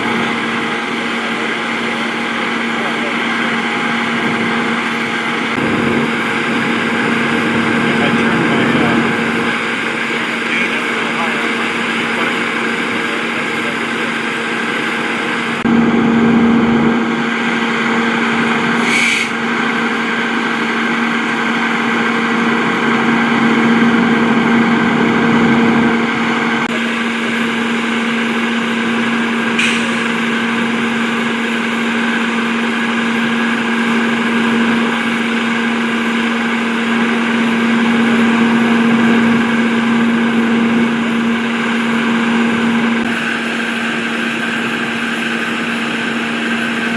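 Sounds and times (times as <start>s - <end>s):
diesel truck engine idling: 0.0s - 46.9s
short air hisses: 18.8s - 19.4s, 29.6s - 30.0s.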